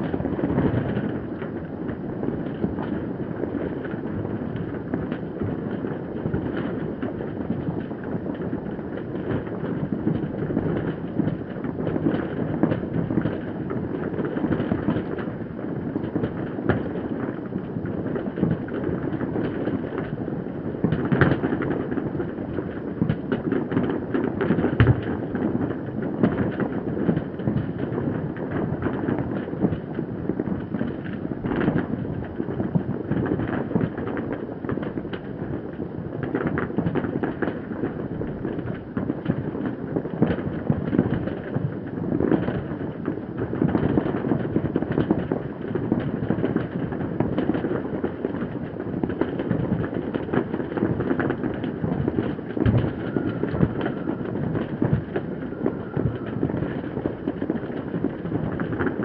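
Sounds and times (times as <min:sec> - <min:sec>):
distant fireworks crackling: 0:00.0 - 0:59.0
loud firework bangs: 0:20.8 - 0:59.0.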